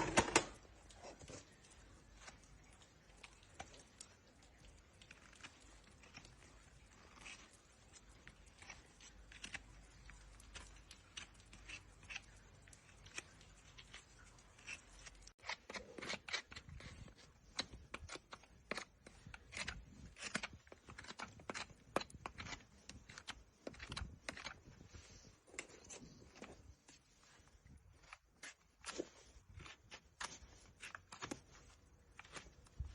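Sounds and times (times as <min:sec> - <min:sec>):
tools cutting horse hoof: 0:08.4 - 0:24.8.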